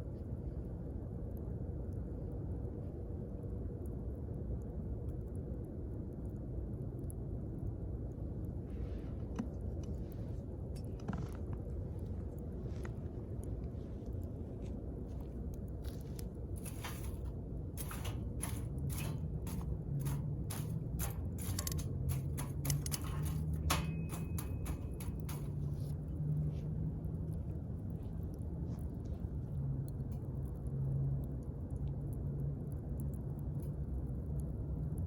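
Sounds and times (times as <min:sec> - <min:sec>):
low rumble of flames: 0:00.0 - 0:35.0
low steady drone: 0:12.0 - 0:34.8
campfire crackling and popping: 0:15.4 - 0:26.1.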